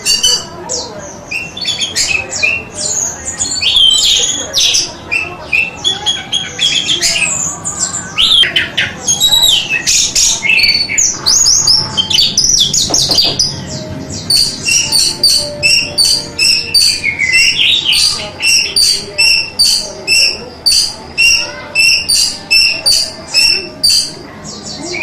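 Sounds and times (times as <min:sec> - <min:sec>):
thrush singing: 0:05.1 - 0:24.9.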